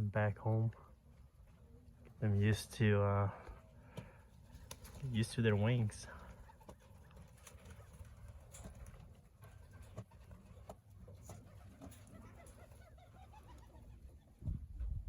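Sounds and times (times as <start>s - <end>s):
pigeons cooing: 3.4s - 15.0s.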